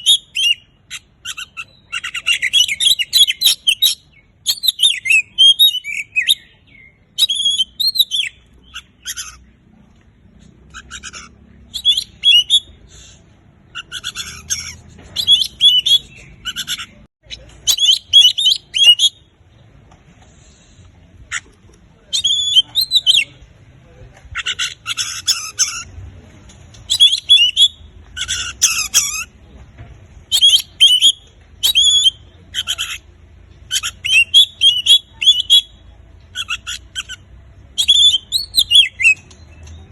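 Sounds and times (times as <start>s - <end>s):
bird singing: 0.0s - 9.4s, 10.7s - 12.8s, 13.7s - 19.3s, 26.9s - 29.3s, 30.3s - 33.0s, 33.6s - 37.2s, 37.8s - 39.9s.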